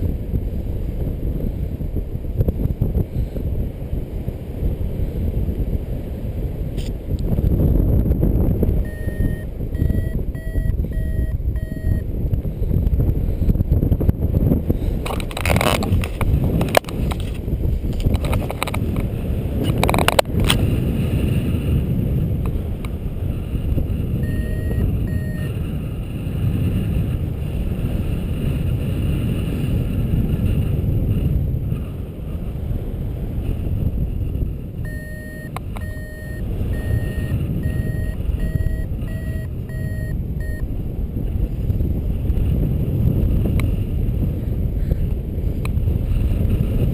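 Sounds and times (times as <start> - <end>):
strong wind buffeting microphone: 0.0 - 46.9
variometer short beeps: 8.8 - 12.1, 24.2 - 25.6, 34.8 - 40.7.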